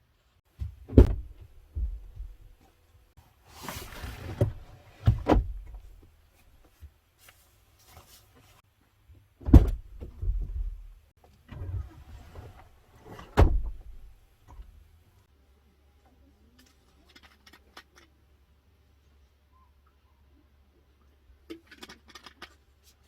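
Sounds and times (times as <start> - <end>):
heavy thumps: 0.5 - 2.6.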